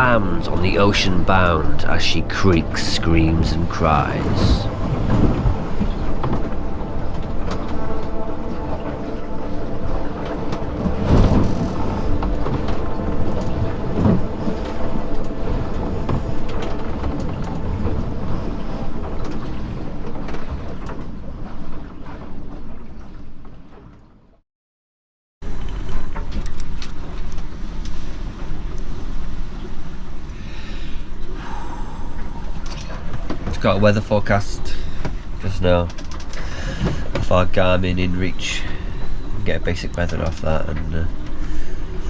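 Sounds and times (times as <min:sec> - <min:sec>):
steady drone: 0:00.0 - 0:21.4, 0:27.9 - 0:42.0
rushing water: 0:00.0 - 0:24.0, 0:25.4 - 0:42.0
wind: 0:00.0 - 0:24.4, 0:25.4 - 0:42.0
hull slamming into waves: 0:10.5 - 0:15.0.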